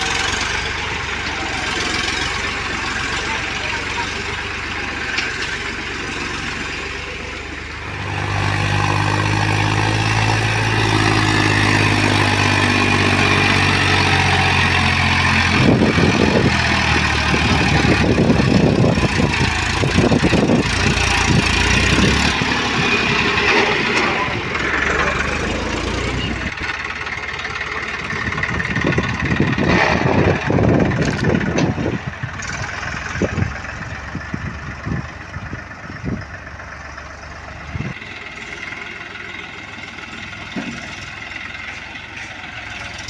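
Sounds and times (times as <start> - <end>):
diesel engine revving: 0.0 - 43.0
knocks and rattles: 10.3 - 36.4, 40.2 - 41.7.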